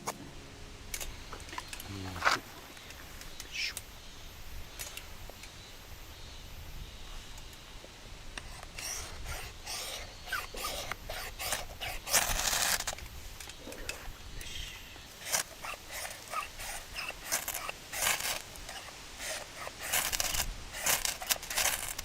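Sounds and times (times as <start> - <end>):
rustling and scraping of objects: 0.0 - 3.9, 8.4 - 22.0.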